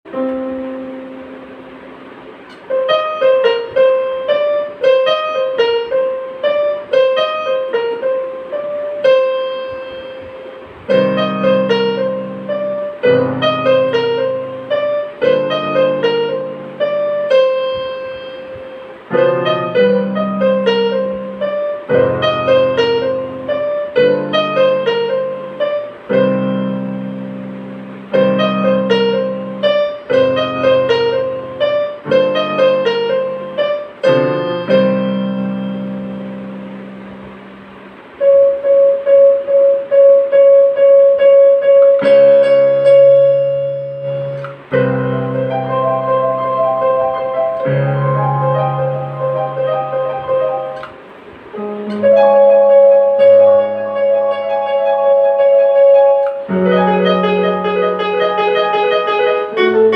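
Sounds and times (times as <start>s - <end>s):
low piano chords: 0.0s - 59.9s
piano melody: 0.0s - 59.9s.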